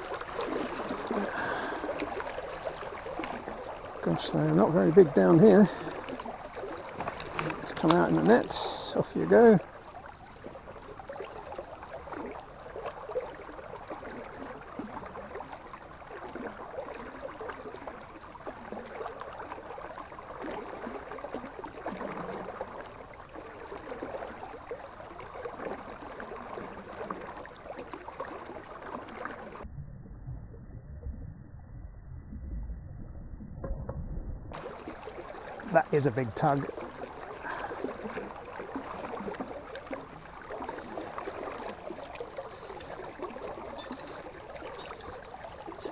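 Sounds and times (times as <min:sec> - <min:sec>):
river water babbling: 0:00.0 - 0:29.6, 0:34.6 - 0:45.9
dull low rumble: 0:29.6 - 0:34.6.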